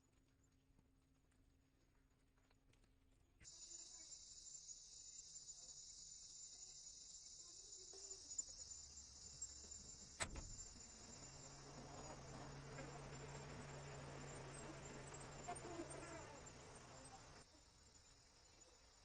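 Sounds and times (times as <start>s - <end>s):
insect chorus: 3.4s - 19.0s
low hum: 8.0s - 17.4s.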